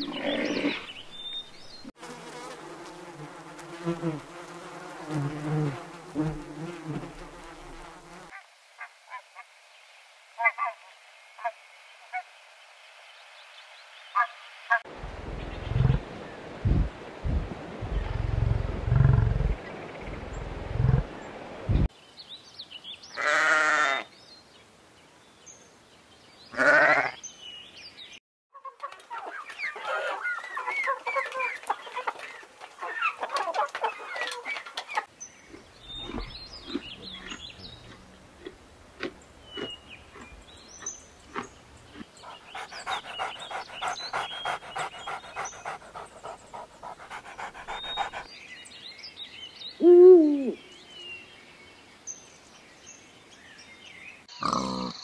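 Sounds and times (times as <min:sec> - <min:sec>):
bird calls and chirps: 0:00.0 - 0:01.9, 0:27.2 - 0:38.2, 0:39.4 - 0:55.0
animal bleating: 0:23.2 - 0:24.1, 0:26.5 - 0:27.2.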